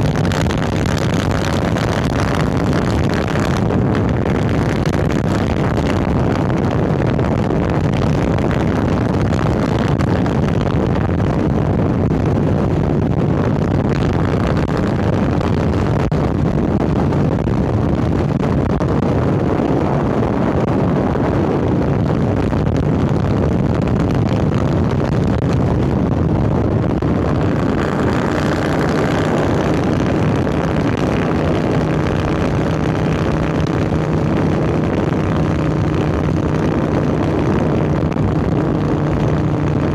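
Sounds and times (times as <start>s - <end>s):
motorcycle engine running: 0.0s - 10.5s, 27.0s - 39.9s.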